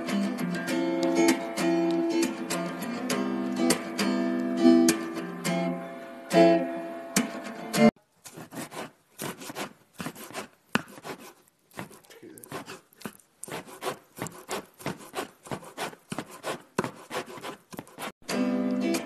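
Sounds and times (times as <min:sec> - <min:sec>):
acoustic guitar plucked and strummed: 0:00.0 - 0:07.9, 0:18.2 - 0:19.0
plastic scraping and rubbing: 0:08.2 - 0:18.2.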